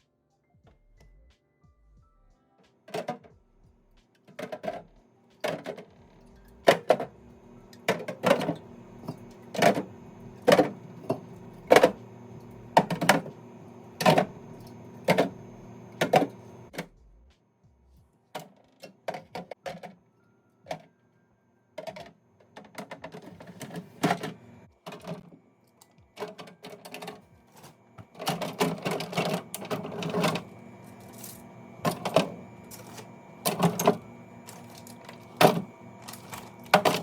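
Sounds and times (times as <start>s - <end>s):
household items clacking: 6.7s - 7.2s, 7.8s - 16.7s, 21.8s - 25.3s, 26.2s - 37.0s.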